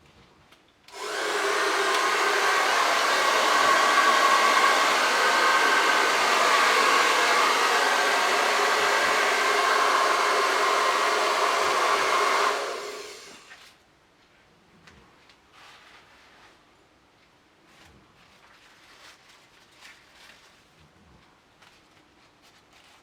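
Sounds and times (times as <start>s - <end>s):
hair dryer running: 0.9s - 13.5s.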